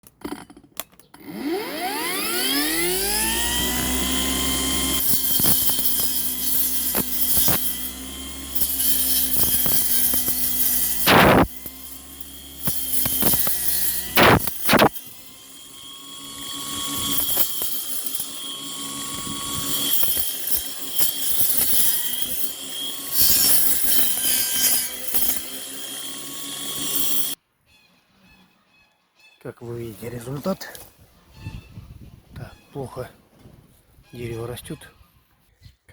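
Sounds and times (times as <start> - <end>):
cutting disc striking stems: 0.2 - 27.4
brush cutter high whine: 1.1 - 27.4.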